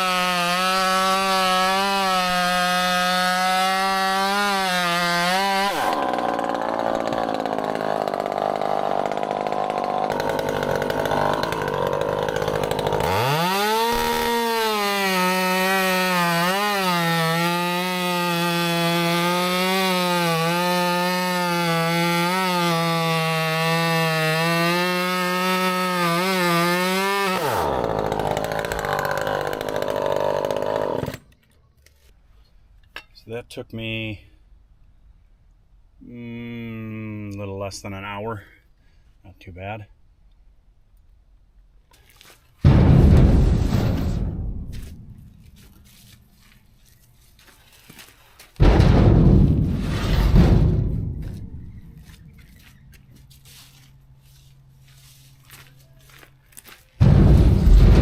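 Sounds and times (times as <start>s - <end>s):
chainsaw cutting wood: 0.0s - 31.4s.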